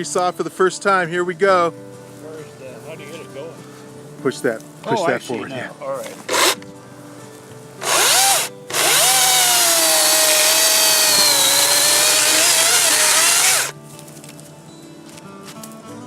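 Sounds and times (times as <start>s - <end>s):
battery chainsaw whine: 6.3s - 6.6s, 7.8s - 13.7s.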